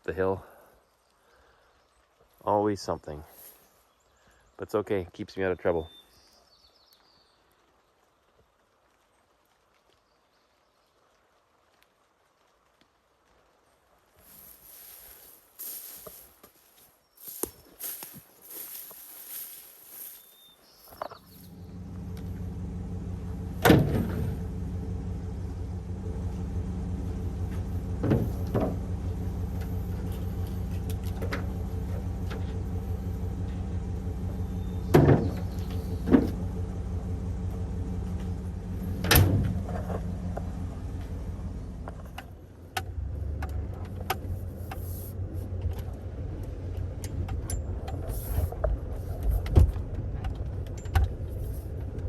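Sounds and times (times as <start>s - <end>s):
vehicle engine running: 17.2s - 52.0s
sharp clunks and knocks: 23.6s - 24.5s, 27.5s - 29.0s, 34.8s - 36.4s, 38.9s - 40.5s, 47.0s - 51.3s
light clicks and rattles: 27.4s - 36.5s, 37.4s - 52.0s.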